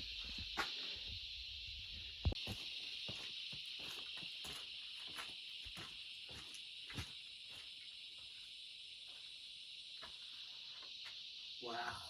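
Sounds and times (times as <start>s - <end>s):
insects chirring: 0.0s - 12.0s
soft footsteps: 2.0s - 7.8s.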